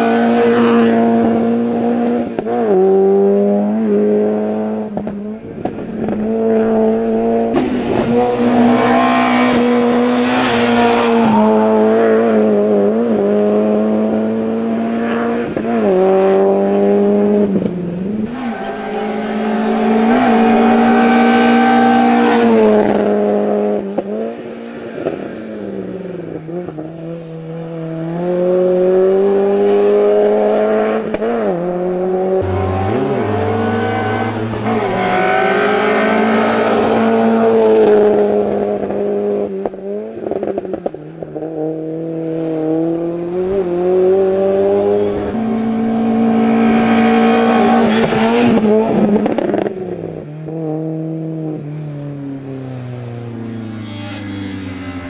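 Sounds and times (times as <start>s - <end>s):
car engine revving hard: 6.0s - 24.1s, 26.6s - 51.4s.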